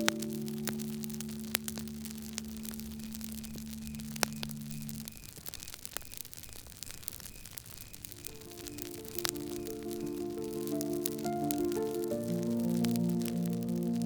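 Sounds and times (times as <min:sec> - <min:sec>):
faint cricket chirps: 0:00.0 - 0:14.0
wood fire crackling and popping: 0:00.0 - 0:14.0
low held musical note: 0:08.1 - 0:14.0.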